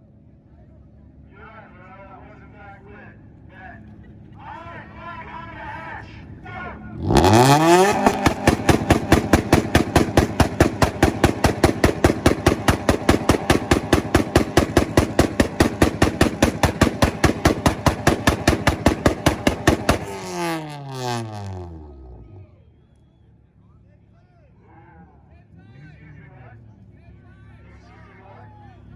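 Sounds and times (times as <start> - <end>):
car engine popping and banging: 7.0 - 22.3.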